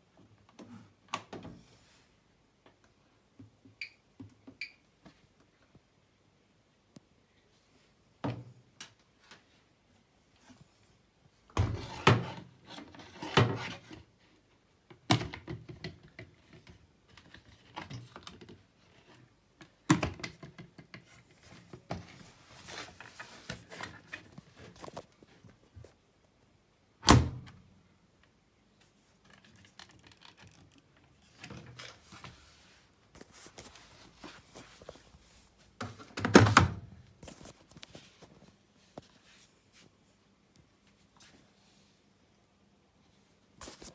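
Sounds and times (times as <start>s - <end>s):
soft scuffing and rustling: 32.0s - 35.8s, 37.2s - 42.0s.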